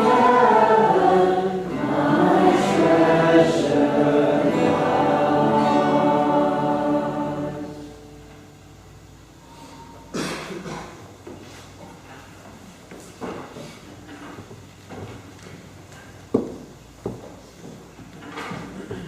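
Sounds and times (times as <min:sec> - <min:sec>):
choir singing held notes: 0:00.0 - 0:08.4.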